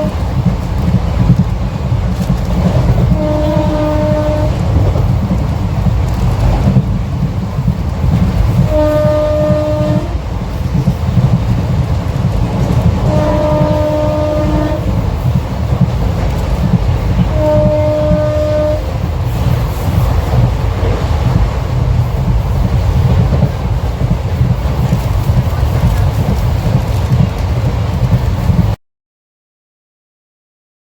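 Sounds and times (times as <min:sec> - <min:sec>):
locomotive horn blasts: 0:00.0 - 0:00.3, 0:03.0 - 0:05.0, 0:08.6 - 0:10.2, 0:12.6 - 0:15.1, 0:17.1 - 0:19.1
train wheels rumbling on track: 0:00.0 - 0:28.8.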